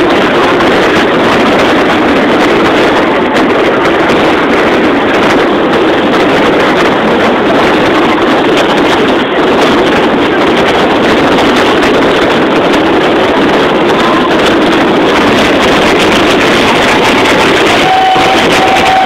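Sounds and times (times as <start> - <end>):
fireworks crackling: 6.8 - 19.0.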